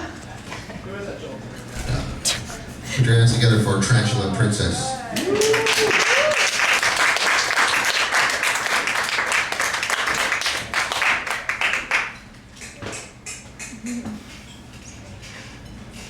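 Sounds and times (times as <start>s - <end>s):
audience applauding: 5.1s - 12.2s.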